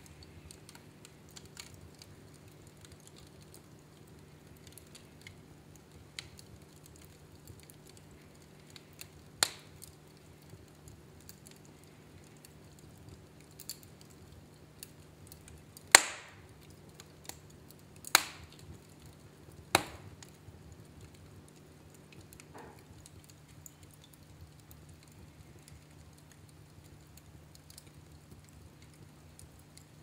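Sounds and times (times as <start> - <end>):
wood fire crackling: 0.0 - 30.0
sharp fire pops: 6.0 - 11.7, 15.8 - 17.4, 18.0 - 21.2.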